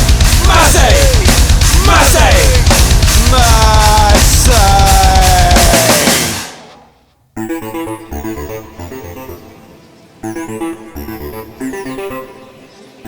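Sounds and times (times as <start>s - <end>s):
heavy rock band playing: 0.0s - 6.8s.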